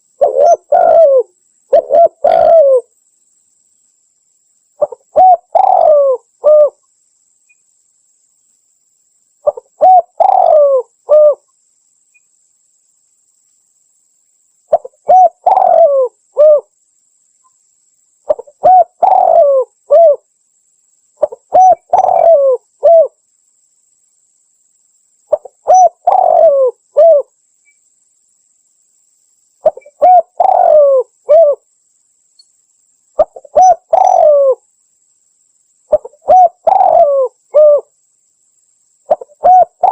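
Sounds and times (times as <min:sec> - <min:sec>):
dove cooing: 0:00.2 - 0:02.9, 0:04.8 - 0:06.8, 0:09.4 - 0:11.4, 0:14.7 - 0:16.7, 0:18.3 - 0:20.2, 0:21.2 - 0:23.2, 0:25.3 - 0:27.3, 0:29.6 - 0:31.6, 0:33.2 - 0:34.6, 0:35.9 - 0:37.9, 0:39.1 - 0:39.9.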